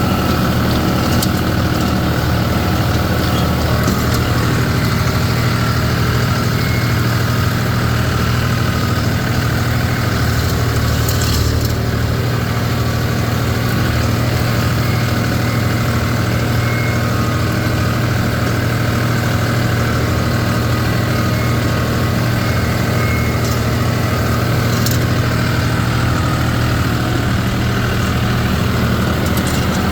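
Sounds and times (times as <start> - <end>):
tractor engine running: 0.0 - 29.9.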